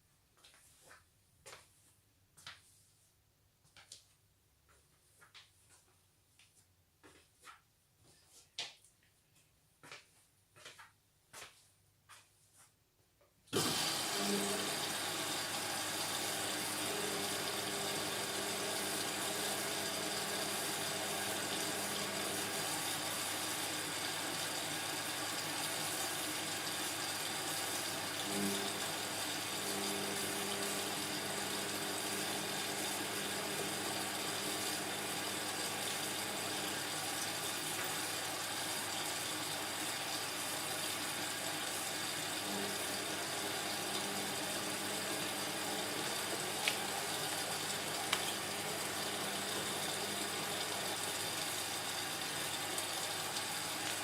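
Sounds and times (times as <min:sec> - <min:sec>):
water rushing into washing machine: 0:13.5 - 0:54.0.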